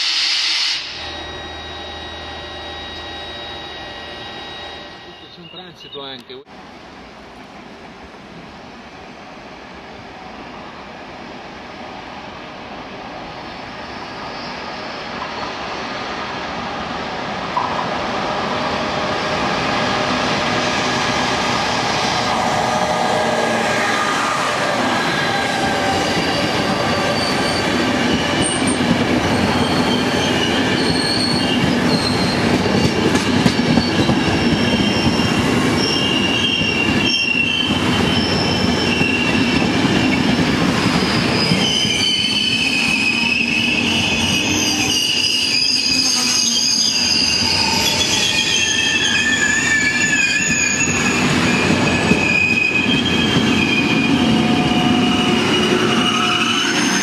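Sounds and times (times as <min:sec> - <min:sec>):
high wavering wheel squeals: 0:00.0 - 0:06.2, 0:21.8 - 0:57.0
train wheels rumbling on rail: 0:06.6 - 0:57.0.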